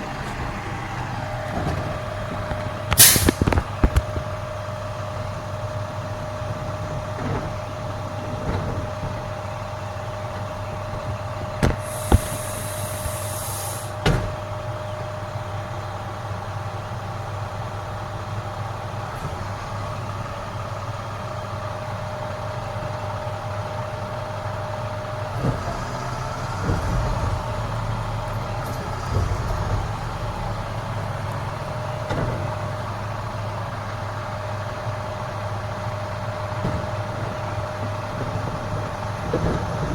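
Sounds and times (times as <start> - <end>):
constant mechanical whine: 0.0 - 39.9
garbage truck engine running: 0.0 - 39.9
air hissing: 2.9 - 3.5, 11.7 - 14.0.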